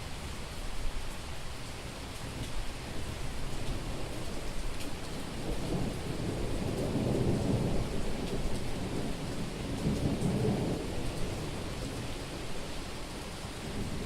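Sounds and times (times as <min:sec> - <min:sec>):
heavy rain on a street: 0:00.0 - 0:14.0
rolling thunder rumble: 0:02.3 - 0:12.9.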